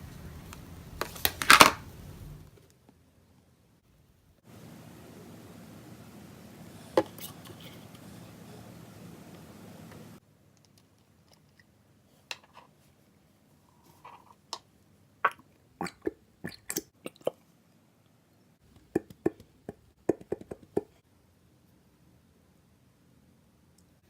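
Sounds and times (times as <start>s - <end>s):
steady hiss: 4.4s - 10.3s.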